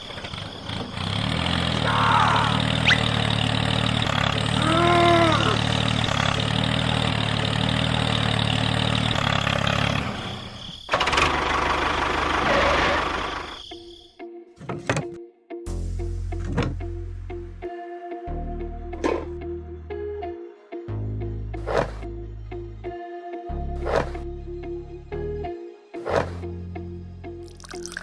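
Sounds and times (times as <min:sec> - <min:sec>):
small engine running: 0:00.0 - 0:13.6.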